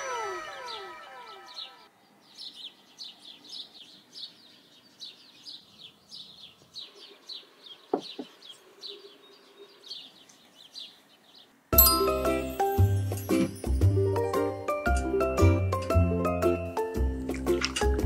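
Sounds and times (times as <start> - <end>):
small bird chirping: 0.0 - 11.6.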